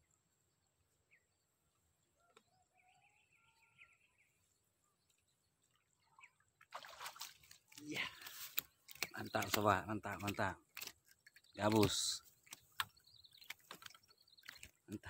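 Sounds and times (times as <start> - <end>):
faint bird chirps: 0.0 - 6.7.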